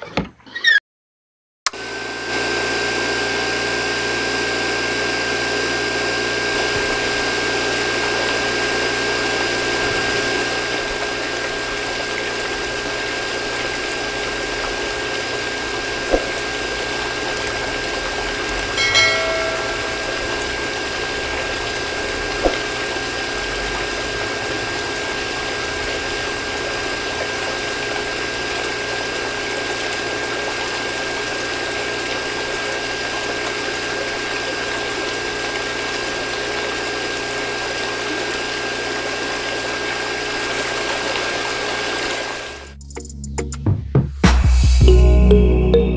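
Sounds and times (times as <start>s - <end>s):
water pump whining: 1.7s - 42.7s
water flowing: 6.2s - 42.7s.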